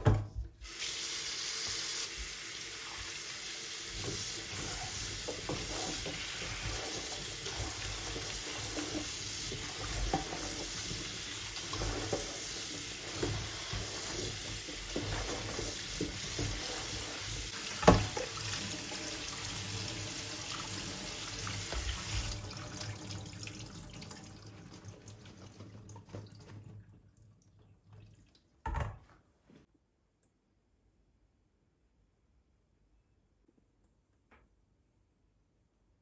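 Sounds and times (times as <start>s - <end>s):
tap running into a sink: 3.9s - 19.4s, 20.4s - 24.1s.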